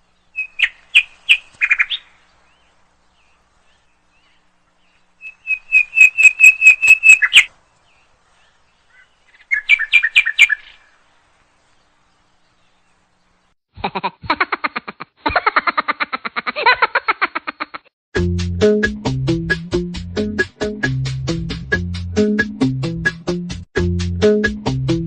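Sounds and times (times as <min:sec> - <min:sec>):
bird chirping: 0:00.0 - 0:13.6.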